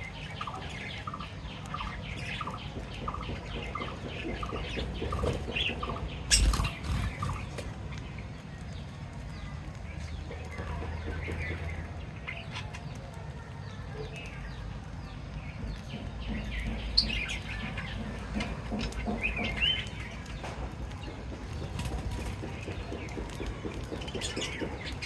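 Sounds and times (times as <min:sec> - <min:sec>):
cage birds chirping: 0:00.0 - 0:25.0
wings flapping: 0:04.5 - 0:07.8.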